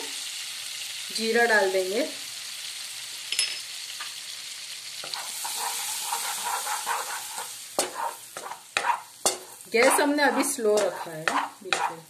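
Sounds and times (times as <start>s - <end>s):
seeds sizzling in oil: 0.0s - 12.0s
spatula stirring seeds: 5.0s - 12.0s.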